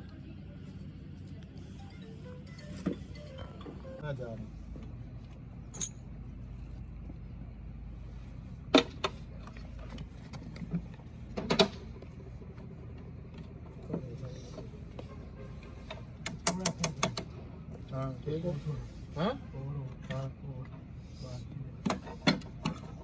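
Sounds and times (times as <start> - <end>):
steady low hum: 0.0 - 23.0
tools clinking on metal engine parts: 5.6 - 6.1.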